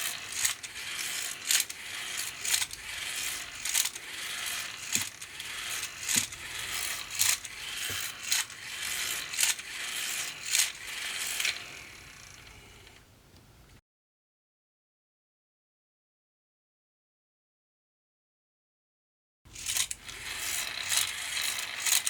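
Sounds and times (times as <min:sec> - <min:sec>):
hand-powered fan whirring and ratcheting: 0:00.0 - 0:13.0, 0:19.5 - 0:22.0.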